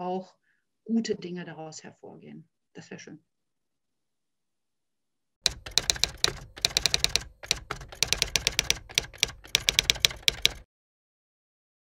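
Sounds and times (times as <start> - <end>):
typewriter keys clacking: 5.5 - 10.6.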